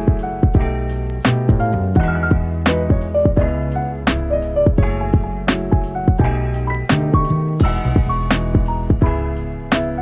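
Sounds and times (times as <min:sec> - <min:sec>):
keyboard instrumental with steady beat: 0:00.0 - 0:10.0.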